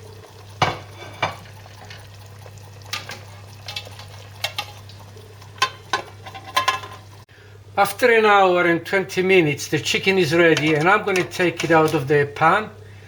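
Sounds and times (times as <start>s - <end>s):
metal clinking on cooking pot: 2.9s - 4.8s, 5.6s - 7.1s, 10.5s - 12.0s.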